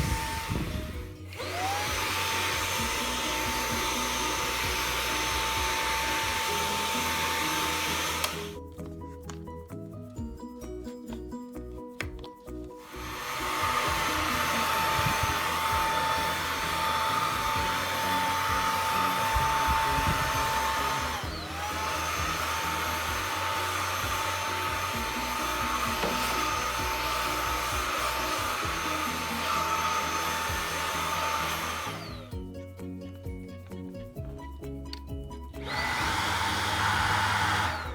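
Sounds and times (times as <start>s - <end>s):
stick vacuum motor whine: 0.0s - 8.6s, 12.8s - 32.4s, 35.6s - 37.9s.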